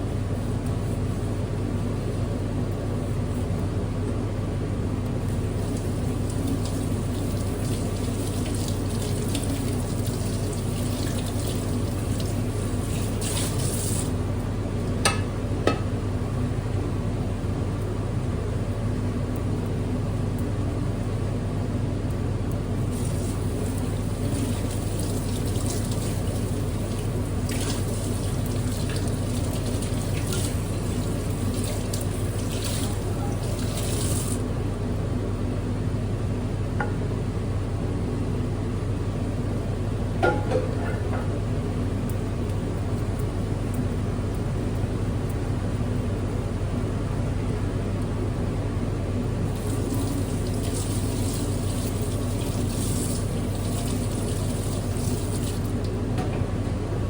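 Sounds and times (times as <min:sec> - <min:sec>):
steady low hum: 0:00.0 - 0:57.0
water running into a sink: 0:05.3 - 0:14.3, 0:22.8 - 0:34.5, 0:49.4 - 0:56.0.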